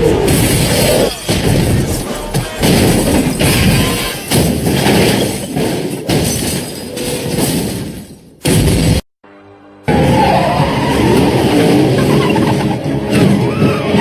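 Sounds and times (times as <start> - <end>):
action film music: 0.0 - 5.2, 9.2 - 14.0
crashes and heavy impacts: 0.0 - 9.0.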